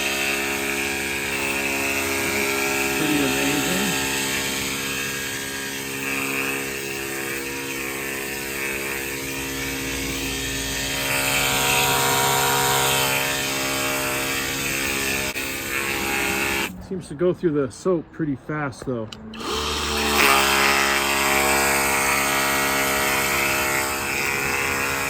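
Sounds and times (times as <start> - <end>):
electric pump whine: 0.0 - 16.7, 19.4 - 25.0.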